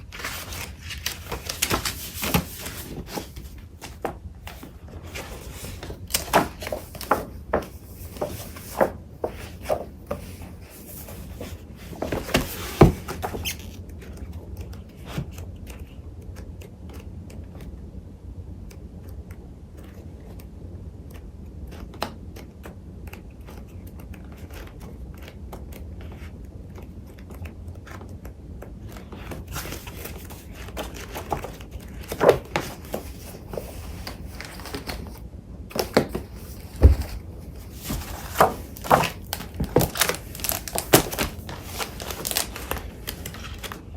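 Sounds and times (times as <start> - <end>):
paper shuffling and rustling: 0.0 - 16.0, 28.8 - 43.9.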